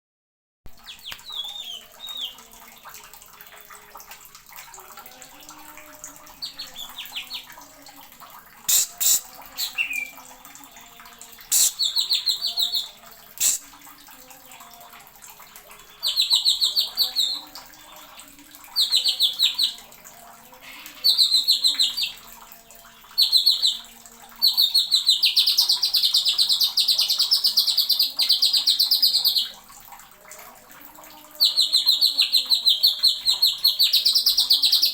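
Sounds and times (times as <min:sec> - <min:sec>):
bird singing in trilled bursts: 0:00.8 - 0:02.4, 0:06.3 - 0:07.5, 0:08.7 - 0:10.2, 0:11.5 - 0:13.6, 0:15.9 - 0:19.8, 0:20.6 - 0:22.2, 0:23.2 - 0:29.5, 0:31.4 - 0:34.9.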